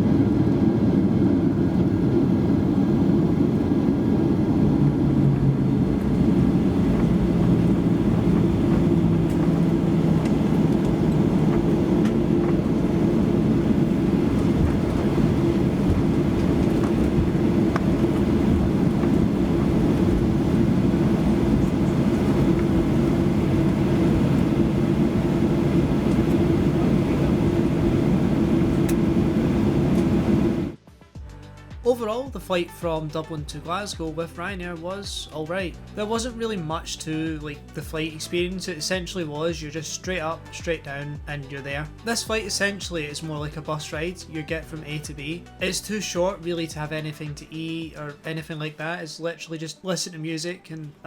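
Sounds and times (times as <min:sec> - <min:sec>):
airplane cabin engine hum: 0:00.0 - 0:30.8.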